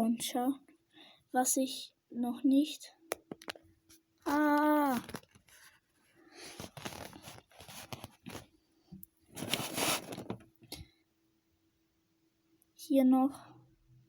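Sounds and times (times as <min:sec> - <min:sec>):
plastic packaging crinkling and tearing: 0:04.3 - 0:08.5, 0:09.4 - 0:10.4.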